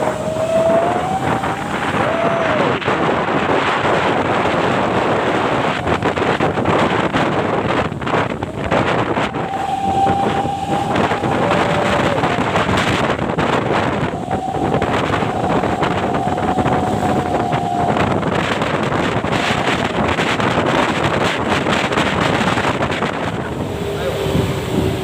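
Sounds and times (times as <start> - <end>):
road and vehicle noise: 0.0 - 25.0
wind on microphone: 0.0 - 25.0
thin high tone: 8.4 - 19.7.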